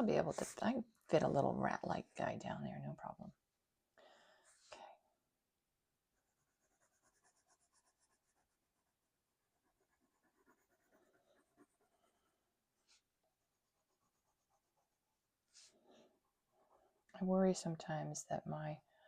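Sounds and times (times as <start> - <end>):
pencil scratching on paper: 6.1 - 17.0.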